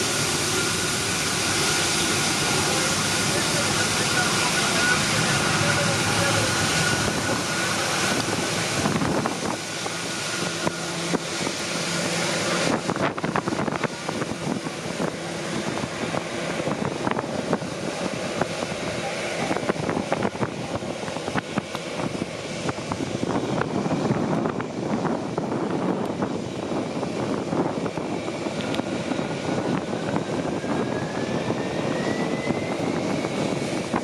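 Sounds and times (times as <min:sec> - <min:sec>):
loud rushing hiss: 0:00.0 - 0:24.2.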